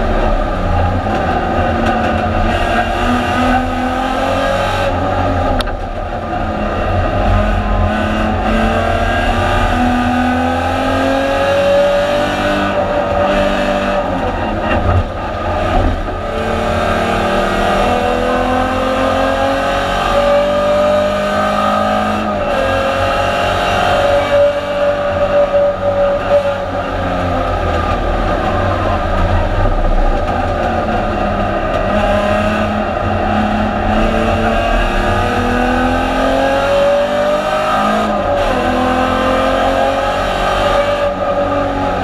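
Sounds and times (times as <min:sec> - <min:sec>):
heavy low rumble: 0:00.0 - 0:10.9, 0:24.8 - 0:36.3
race car engine accelerating: 0:00.0 - 0:42.0.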